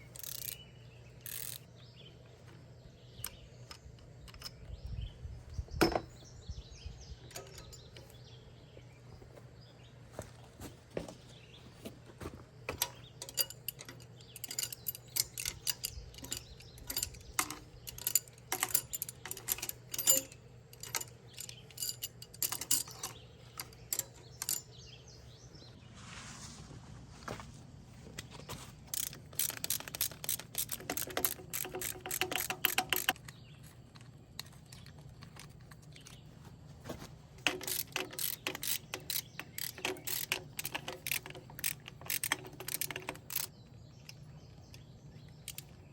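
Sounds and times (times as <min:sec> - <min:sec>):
ratchet wrench clicking: 0:00.0 - 0:00.6, 0:01.2 - 0:01.7, 0:12.7 - 0:24.7, 0:28.9 - 0:33.4, 0:37.4 - 0:43.5, 0:45.4 - 0:45.8
metal clicks and knocks: 0:05.8 - 0:06.2, 0:07.3 - 0:08.2, 0:12.7 - 0:24.8, 0:28.9 - 0:36.3, 0:37.4 - 0:45.8.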